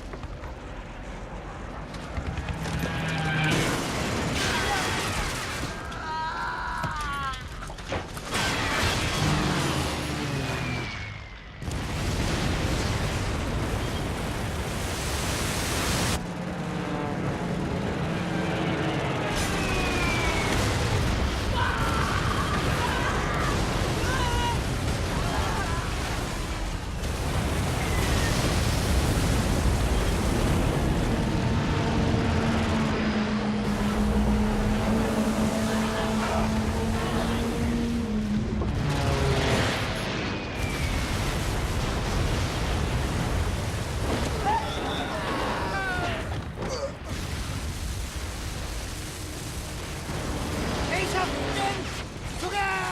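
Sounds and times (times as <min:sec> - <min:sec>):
explosions: 0:02.2 - 0:05.9, 0:11.6 - 0:16.2, 0:19.2 - 0:33.8, 0:38.1 - 0:52.9.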